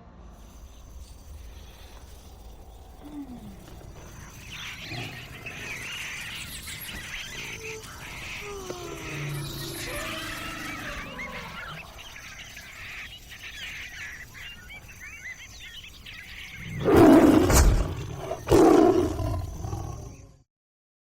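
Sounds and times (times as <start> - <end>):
birds chirping: 0.4 - 20.4
big cat roaring: 2.7 - 12.2, 16.6 - 20.4.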